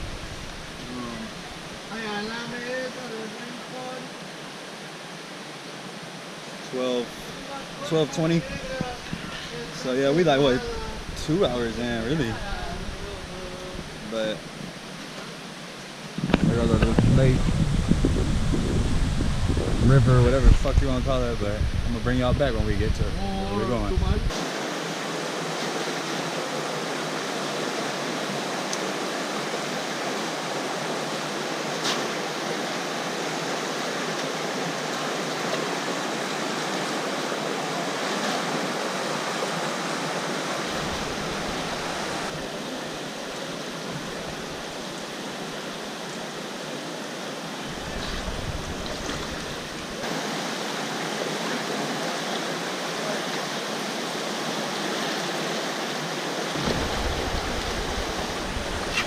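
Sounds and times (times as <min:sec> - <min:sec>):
rushing river water: 0:00.0 - 0:59.0
low rumbles: 0:56.6 - 0:59.0.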